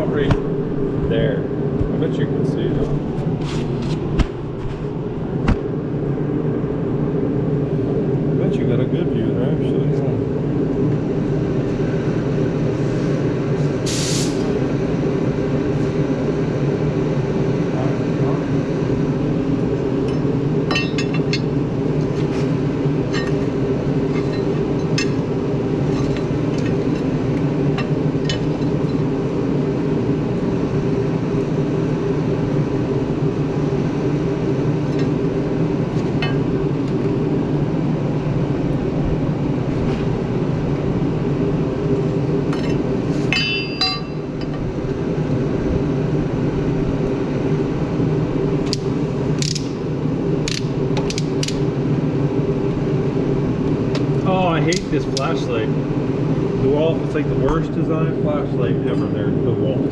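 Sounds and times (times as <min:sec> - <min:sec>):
engine hum: 0:00.0 - 0:59.9
short hiss: 0:13.9 - 0:14.4.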